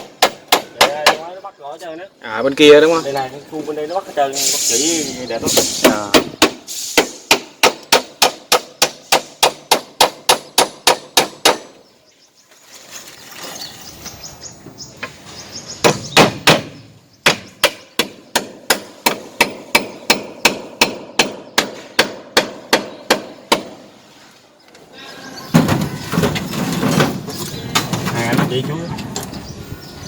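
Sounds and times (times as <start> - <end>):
hammer driving nails into wood: 5.5 - 11.8.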